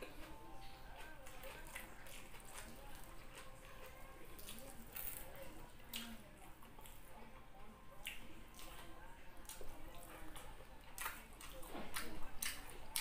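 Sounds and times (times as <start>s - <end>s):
wet chewing: 0.0s - 7.2s, 8.0s - 13.0s.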